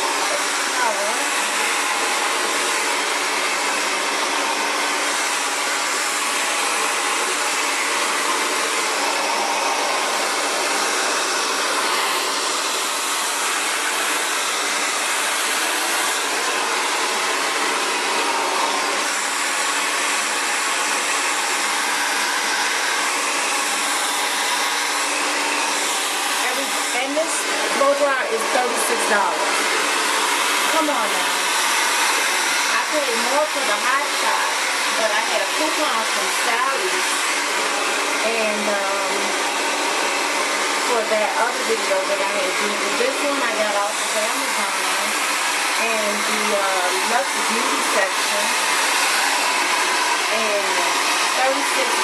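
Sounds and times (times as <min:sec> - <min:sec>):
hair dryer running: 0:00.0 - 0:52.0.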